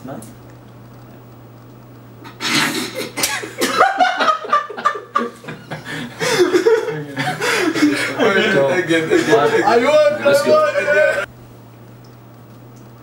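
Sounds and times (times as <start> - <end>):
men laughing: 3.0 - 11.3.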